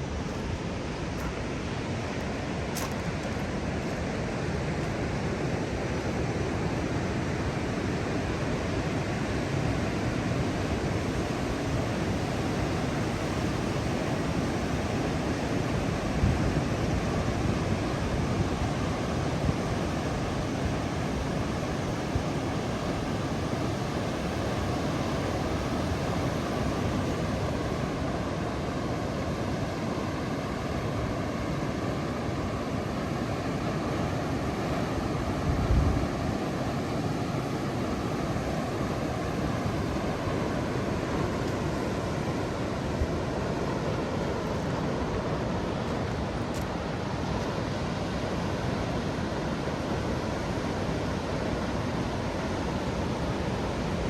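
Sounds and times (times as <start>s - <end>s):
ocean waves surf: 0.0s - 54.0s.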